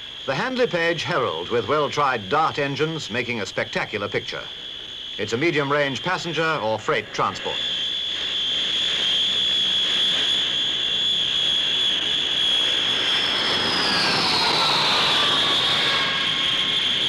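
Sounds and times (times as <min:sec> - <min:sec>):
turboprop aircraft whine: 0:00.0 - 0:17.0
rushing noise: 0:11.9 - 0:17.0.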